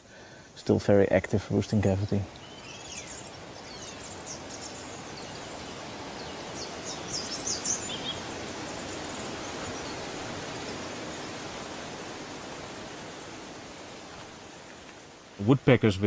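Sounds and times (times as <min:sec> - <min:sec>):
forest ambience hiss: 0:00.0 - 0:16.0
high bird chirps: 0:02.3 - 0:05.6.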